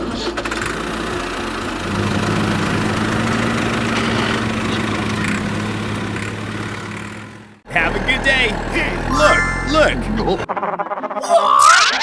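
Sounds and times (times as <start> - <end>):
vehicle engine running: 0.6 - 9.1.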